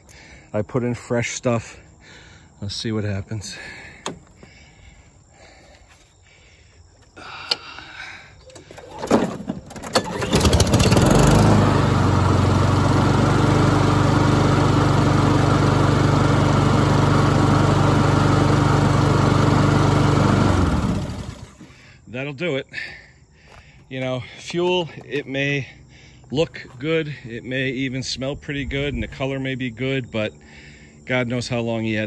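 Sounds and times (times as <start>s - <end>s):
lawn mower engine running: 8.5s - 21.9s.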